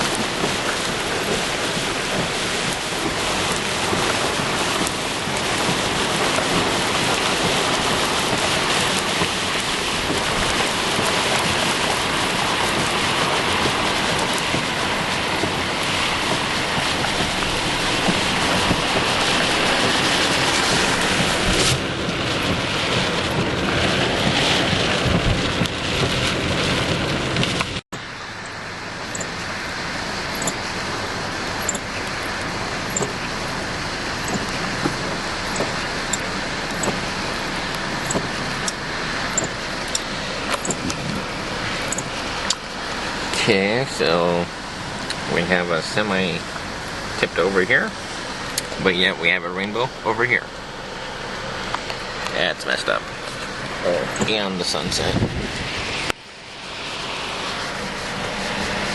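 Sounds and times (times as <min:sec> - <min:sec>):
wind noise: 0:00.0 - 0:27.8, 0:53.1 - 0:58.9
heavy rain: 0:00.0 - 0:58.9.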